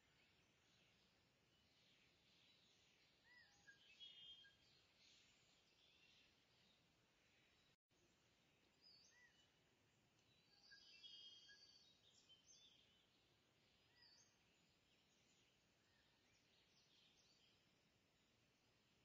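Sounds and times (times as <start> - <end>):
faint bird chirps: 0.0 - 18.4
short whistled calls: 3.3 - 4.6, 10.5 - 11.9.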